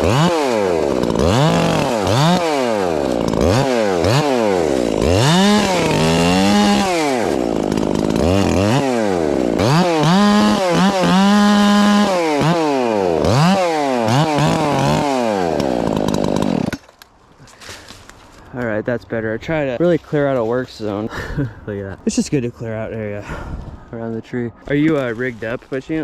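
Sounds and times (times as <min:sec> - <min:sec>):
chainsaw revving: 0:00.0 - 0:16.9.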